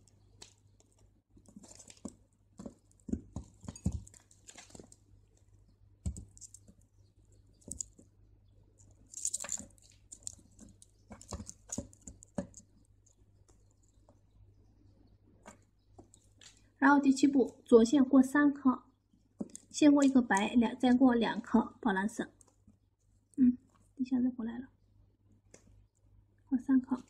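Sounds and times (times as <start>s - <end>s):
beading line rustling: 0.0s - 8.1s, 8.8s - 14.1s
crystal beads clicking together: 9.1s - 12.6s.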